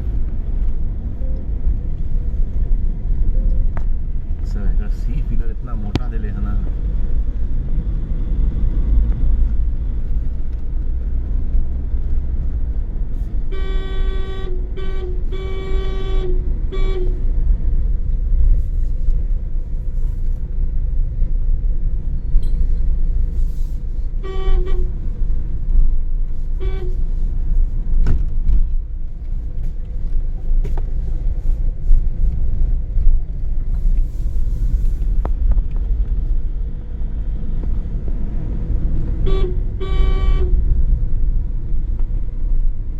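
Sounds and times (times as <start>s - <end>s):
car road rumble: 0.0s - 42.9s
vehicle horn honking: 13.5s - 17.2s, 24.2s - 24.9s, 26.6s - 27.0s, 39.2s - 40.6s.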